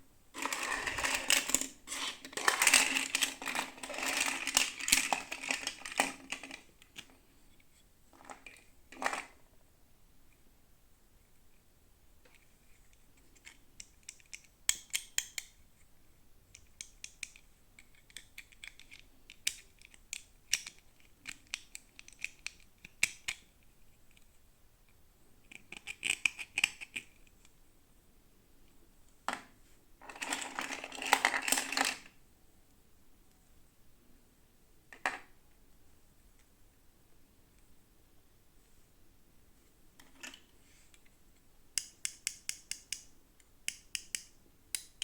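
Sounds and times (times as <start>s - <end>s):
packaging rustling: 0.4s - 6.5s
snipping and scratching: 0.4s - 6.5s.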